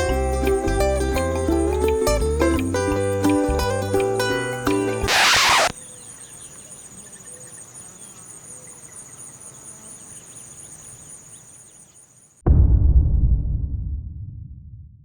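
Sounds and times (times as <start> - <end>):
faint bird calls: 5.1 - 9.1
crickets chirping: 5.1 - 12.4.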